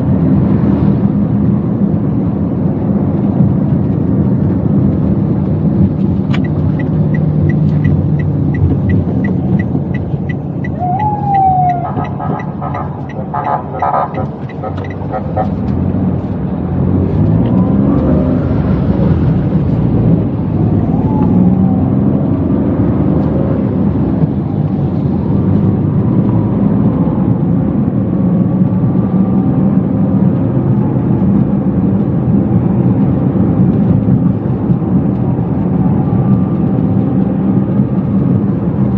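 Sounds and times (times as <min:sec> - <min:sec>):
car engine and road noise: 0:00.0 - 0:38.9
street traffic: 0:00.0 - 0:38.9
regular ticking: 0:06.3 - 0:15.4.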